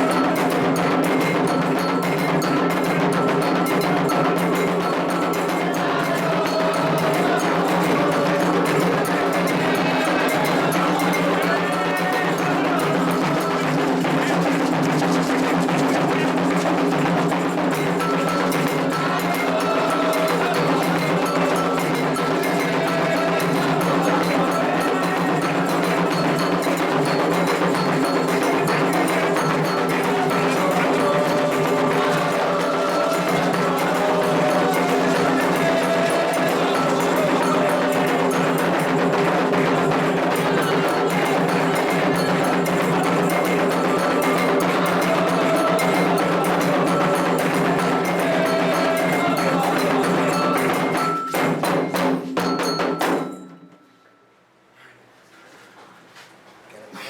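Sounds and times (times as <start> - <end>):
voices chanting: 0.0 - 51.5
hand drums: 0.0 - 53.7
struck metal bell: 17.7 - 54.0.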